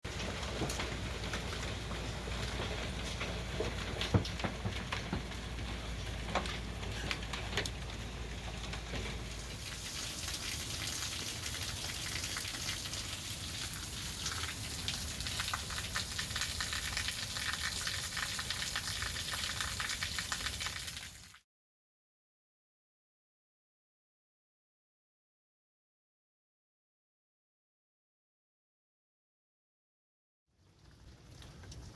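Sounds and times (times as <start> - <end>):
hailstones striking hard surfaces: 0.1 - 21.4
rain falling: 0.1 - 21.4, 30.6 - 31.9.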